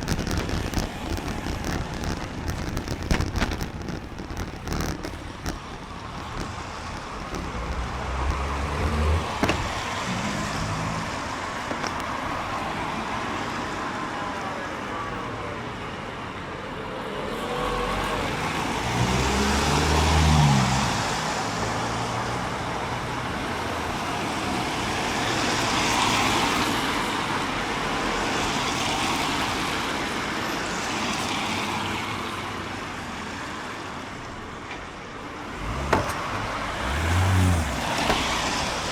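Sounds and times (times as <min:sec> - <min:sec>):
cars swishing past on wet road: 0:00.0 - 0:14.2, 0:17.2 - 0:38.9
loud engine passing: 0:07.5 - 0:11.6, 0:35.4 - 0:38.9.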